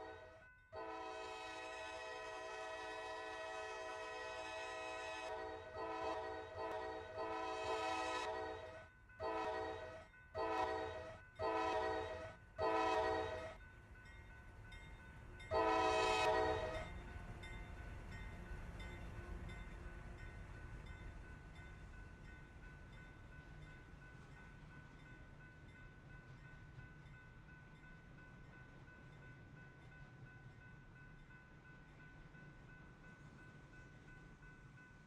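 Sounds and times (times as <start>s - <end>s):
train horn blasts: 0.0s - 13.6s, 15.5s - 17.0s
low train rumble: 0.0s - 35.0s.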